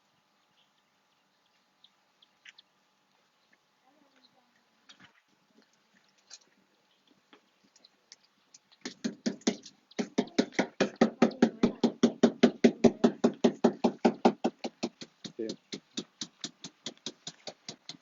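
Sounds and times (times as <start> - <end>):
rapid even knocking: 8.8 - 18.0.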